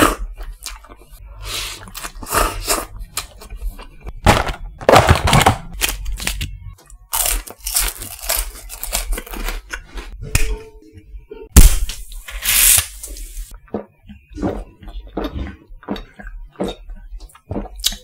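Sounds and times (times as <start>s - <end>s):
packaging crinkling: 7.1s - 9.6s
snack packaging tearing: 7.1s - 9.7s.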